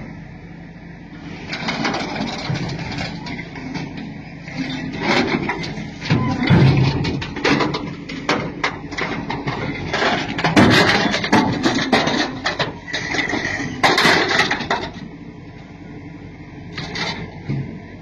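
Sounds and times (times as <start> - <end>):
knocks and crashes: 5.0 - 12.7.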